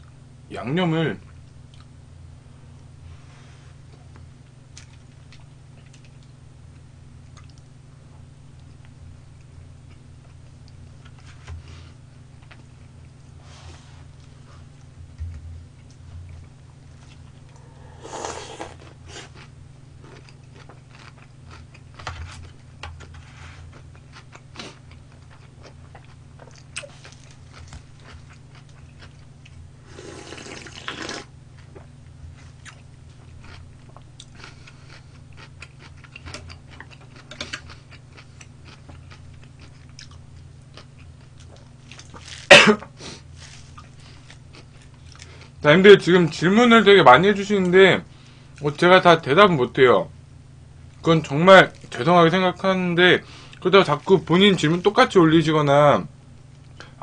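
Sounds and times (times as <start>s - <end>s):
low steady hum: 0.0s - 57.0s
person chewing crispy chicken: 15.7s - 45.6s.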